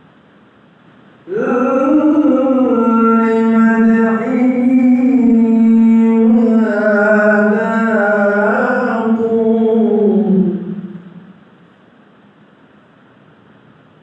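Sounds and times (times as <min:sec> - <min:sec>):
man chanting: 0:01.2 - 0:11.4.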